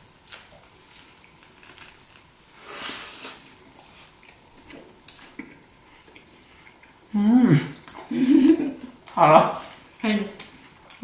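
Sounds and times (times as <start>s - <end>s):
people chewing: 0.3s - 11.0s
breathy hiss: 2.5s - 4.2s.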